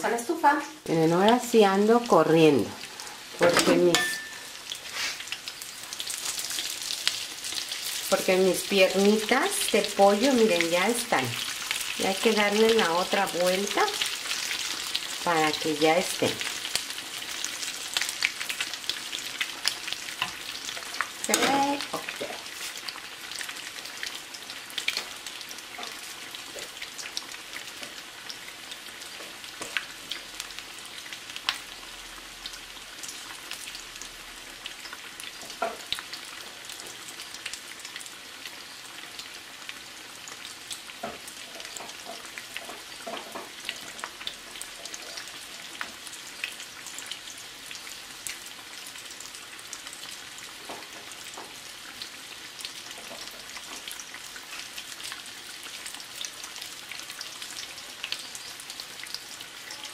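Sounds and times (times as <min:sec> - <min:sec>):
chicken deep-frying in oil: 0:00.0 - 0:59.9.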